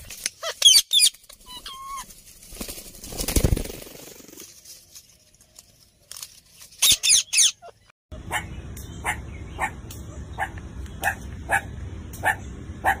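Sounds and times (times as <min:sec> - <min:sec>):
wing flapping: 0:01.1 - 0:05.2
parrot screeching calls: 0:06.8 - 0:07.8.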